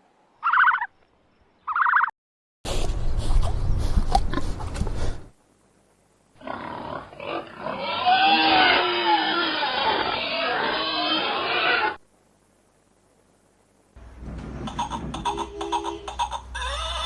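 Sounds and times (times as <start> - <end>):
animal calls wavering in pitch: 0.4 - 0.9.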